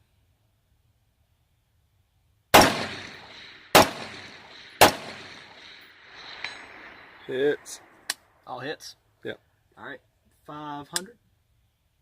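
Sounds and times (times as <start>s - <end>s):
rifle shots with echo: 2.5s - 8.1s.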